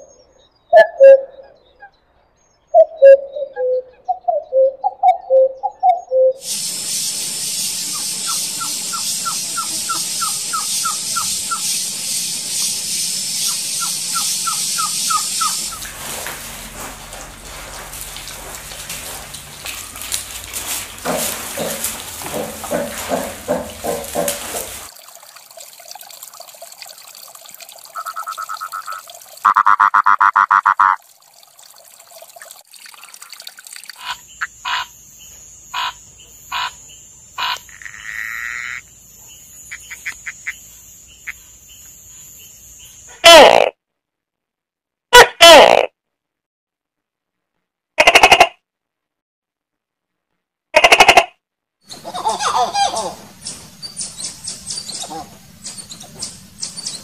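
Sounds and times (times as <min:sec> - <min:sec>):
cuckoo calling: 0:00.0 - 0:01.9, 0:02.7 - 0:24.9, 0:51.9 - 0:57.0
high chirps: 0:04.6 - 0:16.9
steady hiss: 0:06.4 - 0:25.0
pigs calling: 0:13.8 - 0:24.9, 0:51.9 - 0:57.0
toad trilling: 0:28.0 - 0:31.0, 0:33.9 - 0:34.9, 0:35.7 - 0:36.8, 0:37.4 - 0:38.9, 0:48.0 - 0:48.6, 0:50.8 - 0:51.3, 0:51.9 - 0:57.0.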